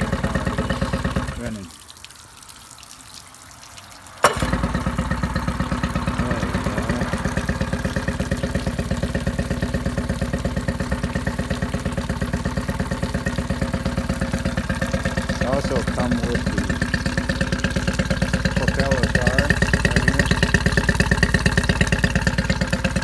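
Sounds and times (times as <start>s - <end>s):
outboard motor electric starter: 0.0s - 1.6s, 4.2s - 23.0s
outboard motor idling: 0.0s - 1.8s, 4.2s - 23.0s.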